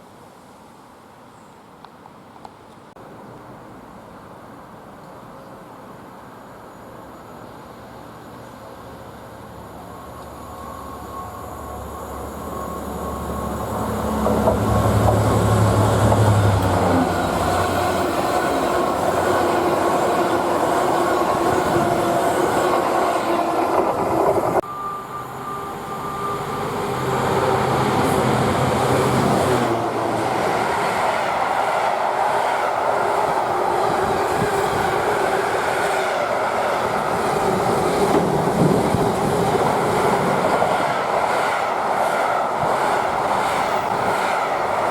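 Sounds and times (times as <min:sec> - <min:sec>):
locomotive engine hum: 0:08.8 - 0:44.9
train wheels clattering on rails: 0:13.6 - 0:24.6, 0:32.2 - 0:44.9.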